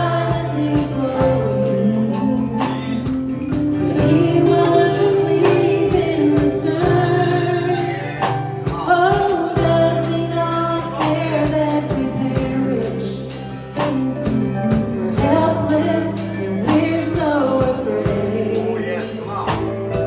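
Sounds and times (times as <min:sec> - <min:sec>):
bass notes: 0:00.0 - 0:20.0
steady drum beat: 0:00.0 - 0:20.0
sustained keyboard notes: 0:00.0 - 0:20.0
people singing gospel: 0:03.7 - 0:14.0, 0:14.7 - 0:20.0.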